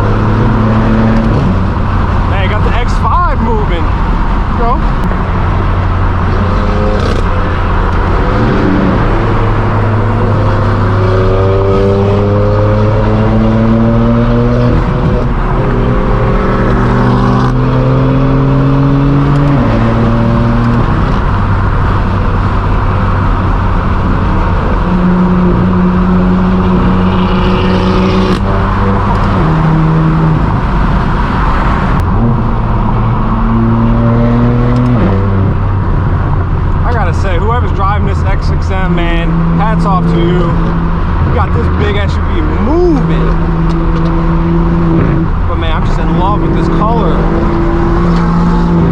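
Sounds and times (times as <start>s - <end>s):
car exhaust while driving: 0.0s - 48.9s.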